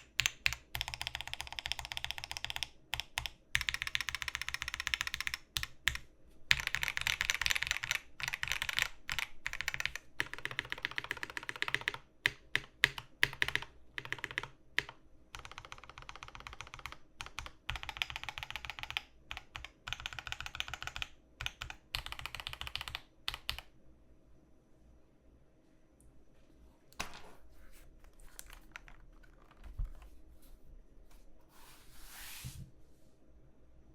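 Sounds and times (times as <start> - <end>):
mechanical keyboard typing: 0.0 - 23.7, 28.2 - 30.1
faint fan hum: 0.0 - 33.9.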